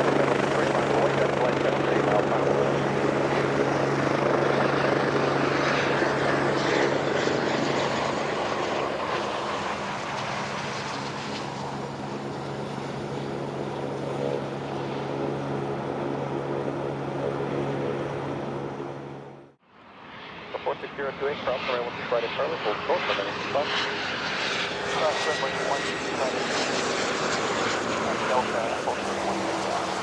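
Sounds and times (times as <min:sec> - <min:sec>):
aircraft engine roar: 0:00.0 - 0:30.0.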